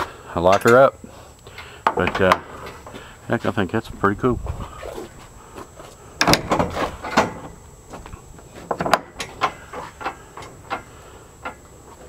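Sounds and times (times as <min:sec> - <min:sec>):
gate latch clicks and knocks: 0:06.2 - 0:07.6.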